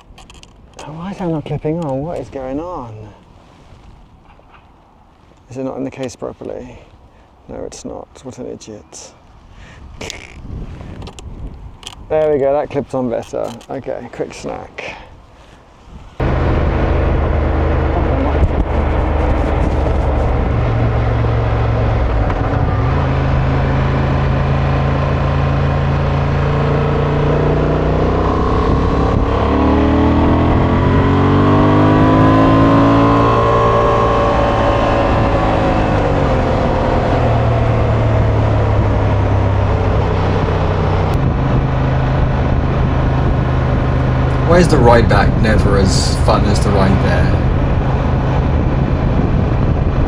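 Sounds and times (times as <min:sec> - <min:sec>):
motorcycle engine running: 0:16.2 - 0:25.7, 0:28.4 - 0:36.5.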